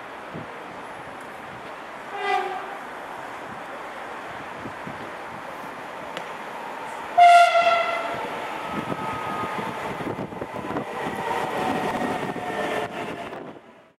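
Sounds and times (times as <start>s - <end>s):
train rumbling with clicking wheels: 0.0s - 14.0s
train horn blast: 2.1s - 2.8s, 7.2s - 8.2s.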